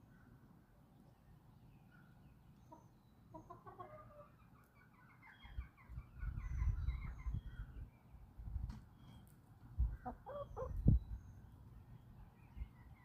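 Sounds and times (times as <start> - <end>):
small birds chirping: 0.0 - 13.0
chickens clucking: 2.7 - 7.4, 9.8 - 11.0.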